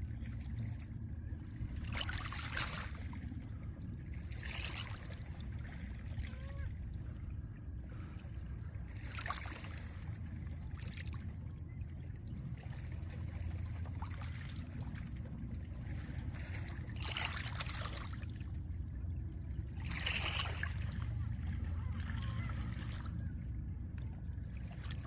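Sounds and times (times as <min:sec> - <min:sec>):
low rumble of wind and surf: 0:00.0 - 0:25.0.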